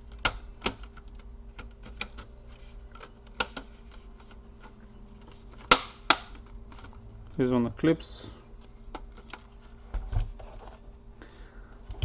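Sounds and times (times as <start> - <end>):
plastic clips snapping: 0.1 - 2.3, 5.6 - 7.0.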